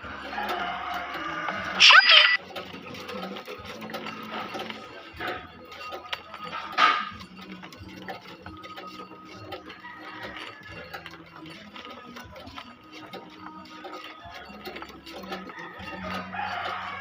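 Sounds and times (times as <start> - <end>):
small metal parts clinking: 0.0 - 17.0.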